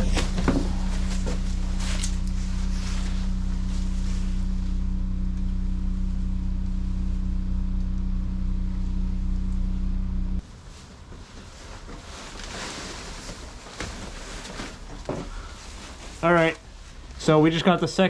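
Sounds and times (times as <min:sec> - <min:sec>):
electric motor humming: 0:00.0 - 0:10.4.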